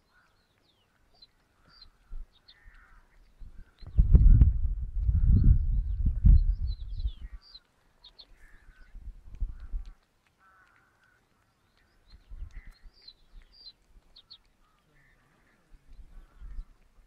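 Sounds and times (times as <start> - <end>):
birds chirping: 0.0 - 4.5, 5.1 - 17.0
microphone rumbles: 3.4 - 7.4, 9.0 - 9.9.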